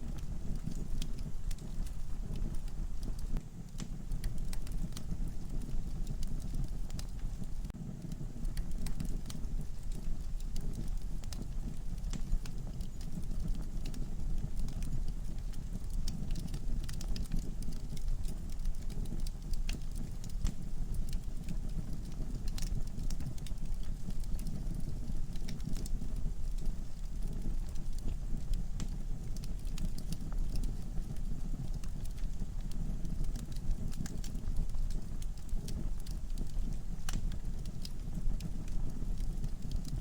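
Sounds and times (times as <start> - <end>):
low rumble of flame: 0.0 - 40.0
wood logs crackling in fireplace: 0.0 - 40.0
sharp pops and snaps: 0.5 - 7.6, 8.5 - 14.0, 26.5 - 40.0.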